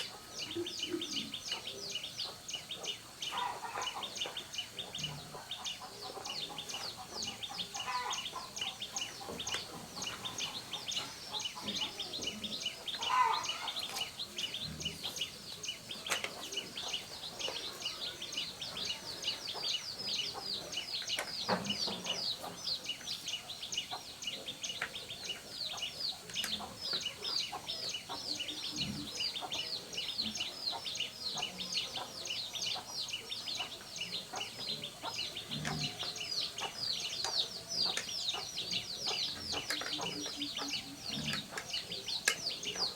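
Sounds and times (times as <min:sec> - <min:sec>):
birds chirping: 0:00.0 - 0:42.9.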